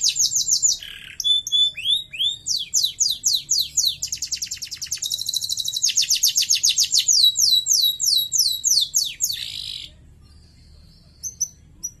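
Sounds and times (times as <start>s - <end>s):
bird chirps: 0.0s - 12.0s
canary singing: 0.0s - 12.0s.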